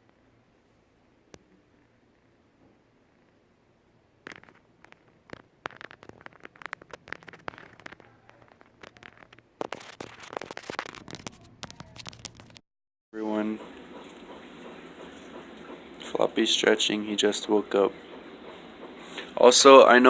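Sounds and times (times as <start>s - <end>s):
bird chewing and rustling: 13.6s - 16.0s.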